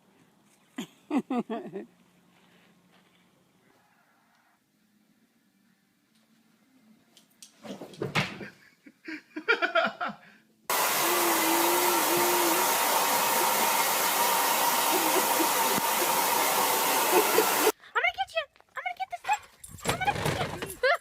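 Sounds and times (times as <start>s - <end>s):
blower rushing air: 10.7s - 17.7s
faint blower whine: 10.7s - 17.7s.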